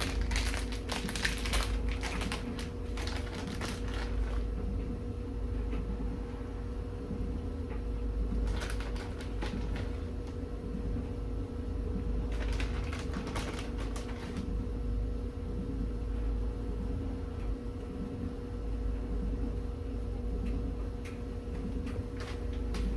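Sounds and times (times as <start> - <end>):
crackly clicking handling noise: 0.0 - 4.9, 7.7 - 10.4, 12.3 - 14.5, 20.4 - 22.9
steady low hum: 0.0 - 22.9.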